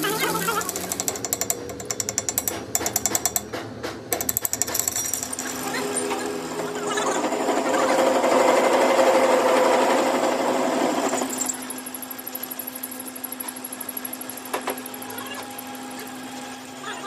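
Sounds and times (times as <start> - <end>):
machine rattling and humming: 0.0 - 17.0.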